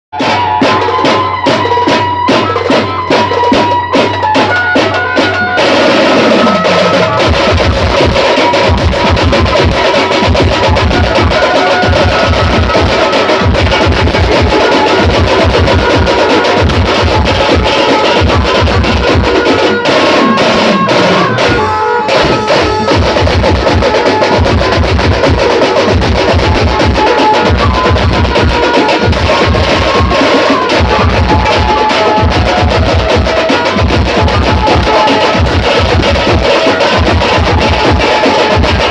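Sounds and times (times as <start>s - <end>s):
fast heavy drumming: 0.2s - 38.9s
banjo band music: 2.4s - 32.6s.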